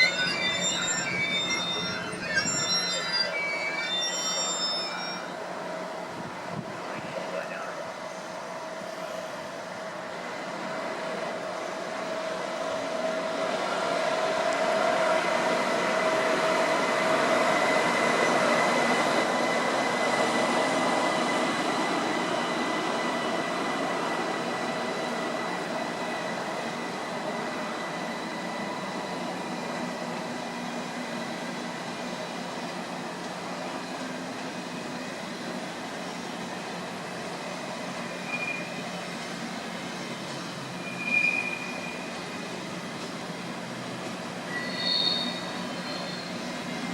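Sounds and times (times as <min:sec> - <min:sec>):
high-pitched squeal: 0:00.0 - 0:05.4
train passing: 0:00.0 - 0:46.9.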